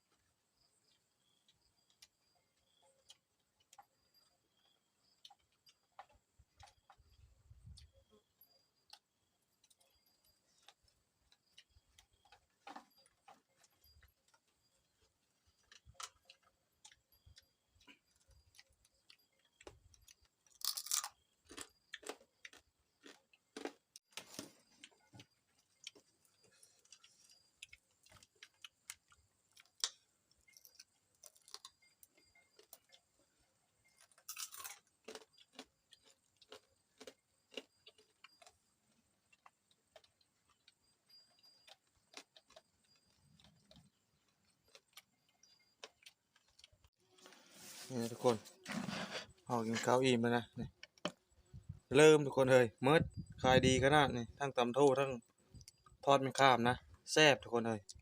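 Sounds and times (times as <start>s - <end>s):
person chewing crunchy food: 8.8s - 47.4s.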